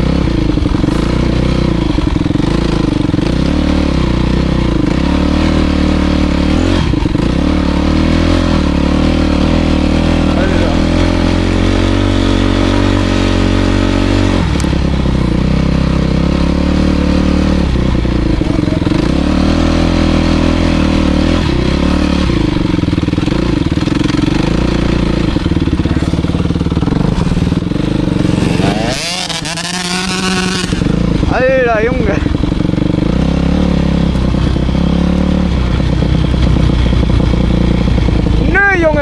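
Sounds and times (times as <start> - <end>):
motocross bike engine revving: 0.0 - 39.0.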